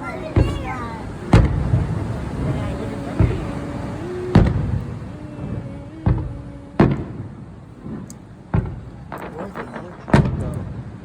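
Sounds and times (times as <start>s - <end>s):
fireworks bangs echoing: 0.0s - 11.0s
faint firework pops: 1.3s - 1.9s, 4.3s - 4.9s, 6.0s - 10.9s.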